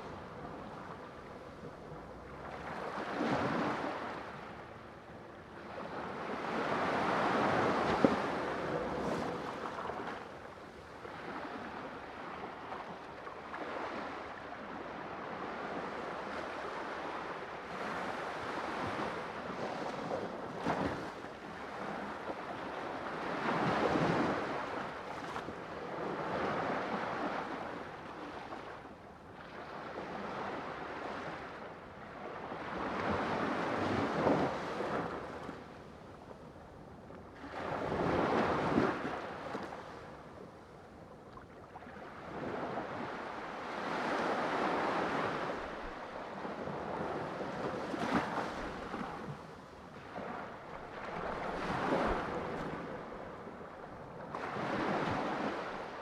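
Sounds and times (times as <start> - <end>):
ocean waves breaking: 42.0 - 56.0.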